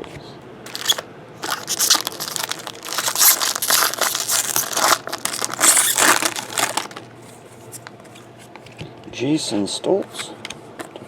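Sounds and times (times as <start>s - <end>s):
foil wrapper crinkling: 0.7s - 7.1s.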